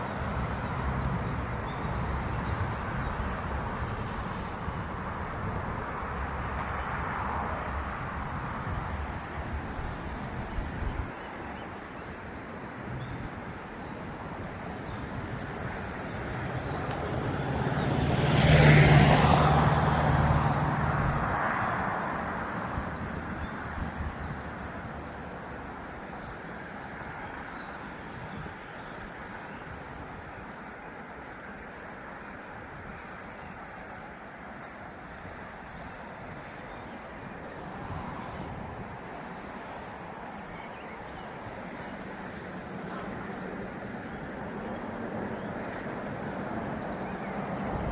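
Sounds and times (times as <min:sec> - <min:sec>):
background traffic: 0:00.0 - 0:47.9
vehicle passing by: 0:13.7 - 0:47.9.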